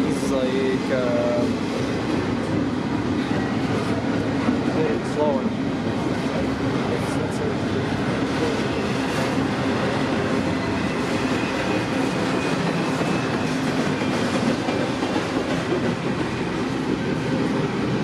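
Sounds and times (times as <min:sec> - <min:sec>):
freight train rumbling past: 0:00.0 - 0:18.0
high wheel squeal: 0:08.4 - 0:15.0.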